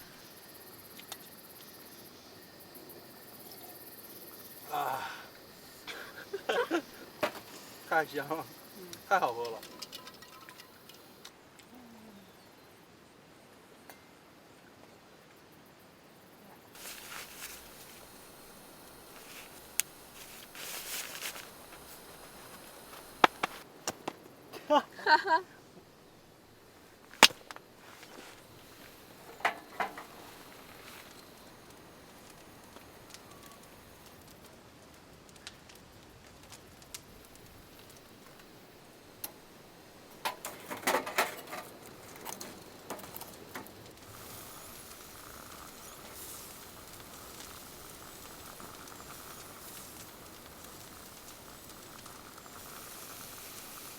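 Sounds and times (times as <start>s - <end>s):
faint steady hiss: 0.0s - 53.9s
rustling: 16.7s - 24.4s, 26.6s - 34.5s.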